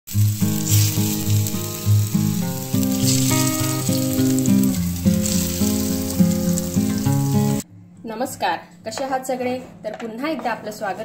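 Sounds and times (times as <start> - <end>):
dough rolls sizzling in oil: 0.1 - 7.6.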